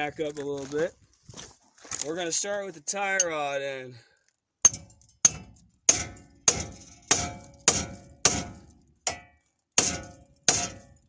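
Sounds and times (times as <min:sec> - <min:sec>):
hammer striking steel: 0:04.7 - 0:11.0.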